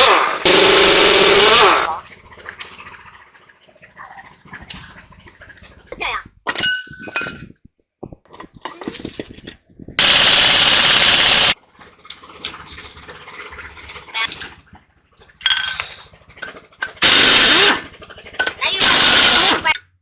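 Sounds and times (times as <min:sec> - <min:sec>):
power tool running: 0:00.0 - 0:02.0, 0:10.0 - 0:11.6, 0:17.0 - 0:17.9, 0:18.8 - 0:19.7
metal tools clinking: 0:06.5 - 0:07.6, 0:15.4 - 0:16.1.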